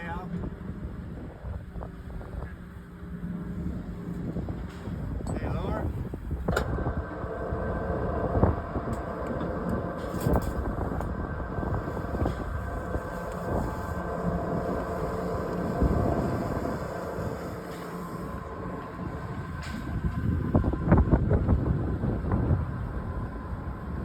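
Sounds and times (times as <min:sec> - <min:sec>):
electric winch whining: 0:02.8 - 0:24.0.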